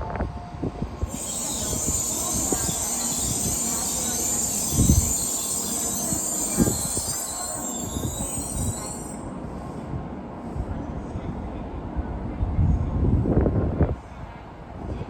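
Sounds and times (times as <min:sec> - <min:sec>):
high-speed train passing: 0:00.0 - 0:15.0.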